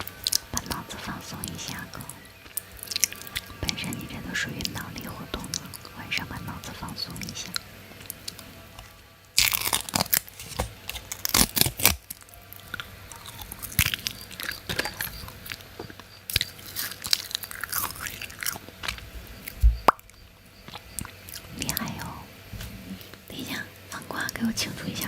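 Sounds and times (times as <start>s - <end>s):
person chewing crunchy food: 1.8s - 3.7s, 7.6s - 21.8s.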